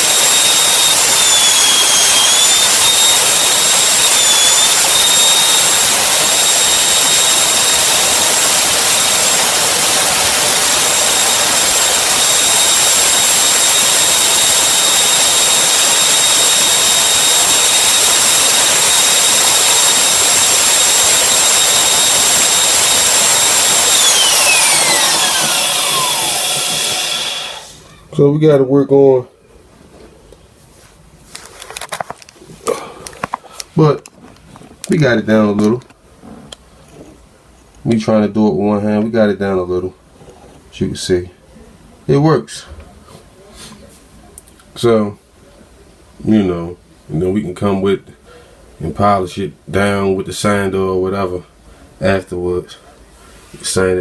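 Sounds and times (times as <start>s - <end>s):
lathe motor high-pitched whine: 0.0s - 27.8s
motor winding down: 0.0s - 27.8s.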